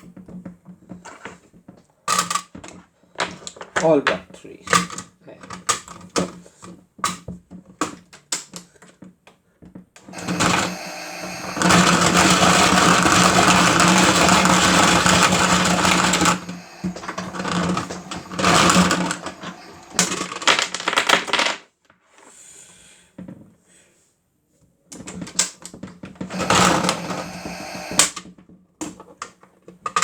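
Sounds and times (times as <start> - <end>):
toy washing machine motor spinning: 10.1 - 20.8, 26.3 - 28.2
sharp clicks: 10.2 - 20.2, 26.3 - 28.1.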